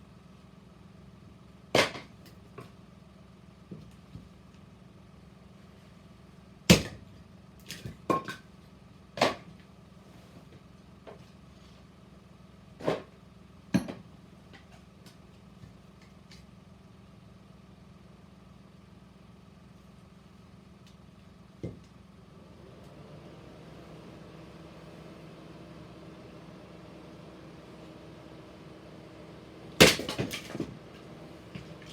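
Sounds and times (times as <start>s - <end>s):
firewood splitting: 6.7s - 7.0s, 29.8s - 31.9s.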